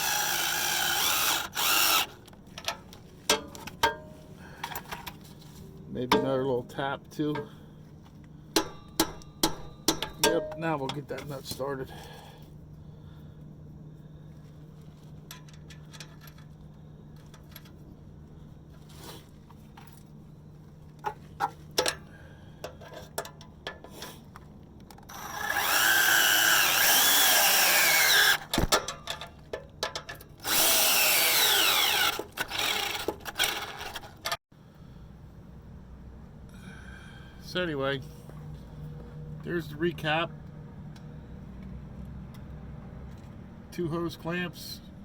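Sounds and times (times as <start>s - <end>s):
power drill spinning: 0.0s - 2.2s, 25.1s - 28.6s, 30.4s - 34.2s
hand tools clicking and tapping: 8.5s - 10.6s.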